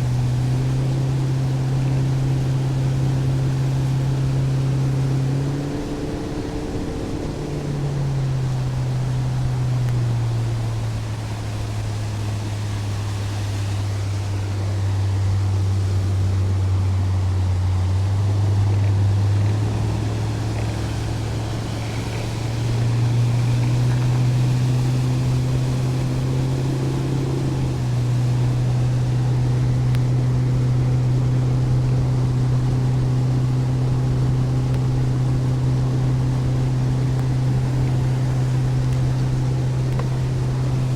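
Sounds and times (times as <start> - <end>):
boat motor running: 0.0 - 40.9.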